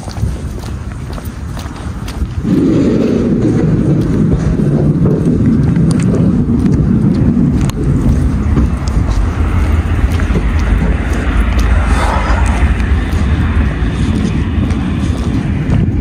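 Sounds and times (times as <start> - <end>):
truck diesel engine and road rumble: 0.0 - 16.0.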